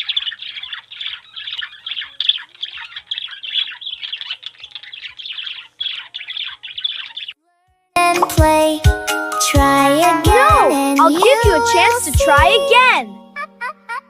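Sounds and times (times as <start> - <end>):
bird chirping: 0.0 - 7.4.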